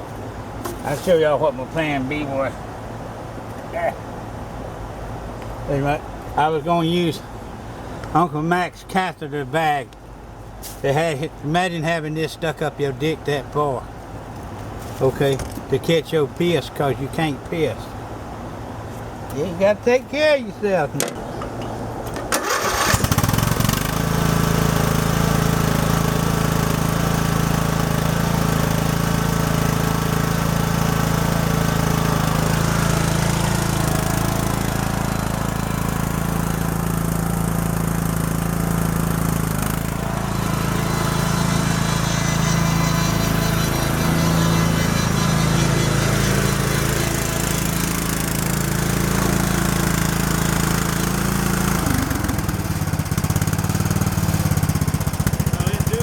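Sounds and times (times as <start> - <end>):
lawn tractor engine humming: 10.9 - 56.0.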